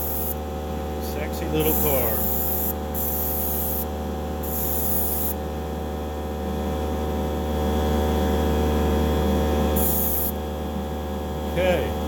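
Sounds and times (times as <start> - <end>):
steady electric hum: 0.0 - 12.0
airbrush spraying hisses: 9.8 - 10.3.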